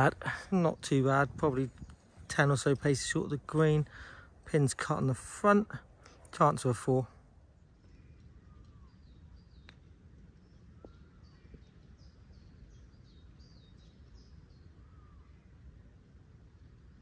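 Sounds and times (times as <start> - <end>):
wind rumble on microphone: 0.0 - 5.6, 7.4 - 17.0
small birds chirping: 0.0 - 17.0
lower arched bird calls: 7.3 - 17.0.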